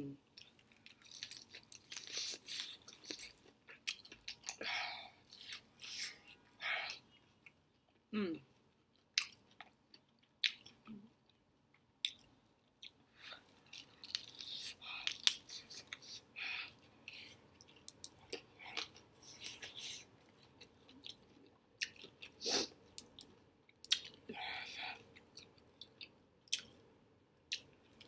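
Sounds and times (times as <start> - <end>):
person chewing with mouth clicks: 12.0 - 13.0, 17.1 - 24.2, 25.0 - 26.8.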